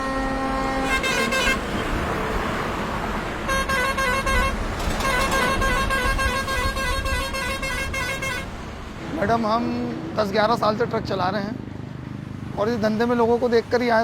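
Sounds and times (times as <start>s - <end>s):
vehicle horns honking: 0.0s - 2.5s, 3.4s - 9.0s
traffic rumble: 0.0s - 14.0s.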